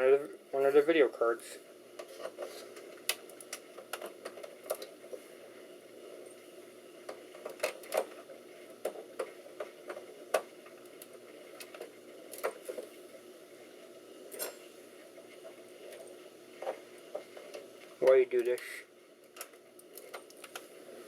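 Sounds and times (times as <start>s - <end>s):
faint steady hum: 0.0s - 21.0s
clicks of handling computer parts: 7.4s - 8.2s.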